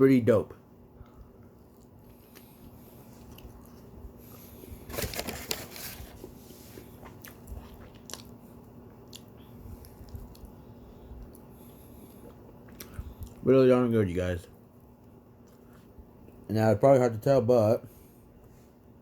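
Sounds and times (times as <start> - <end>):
person chewing crunchy dessert: 1.6 - 4.6, 6.9 - 13.4.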